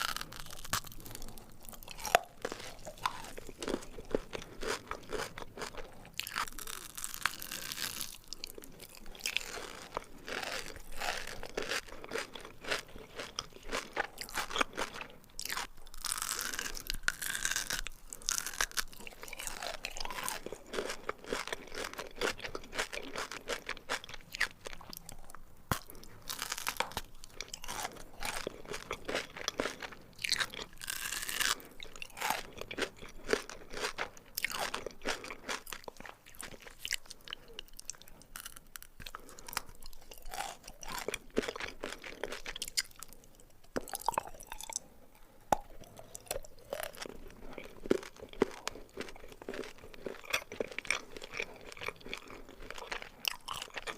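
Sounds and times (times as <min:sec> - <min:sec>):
crunching and chewing chocolate: 0:00.0 - 0:53.9
wet mouth sounds: 0:30.4 - 0:53.9.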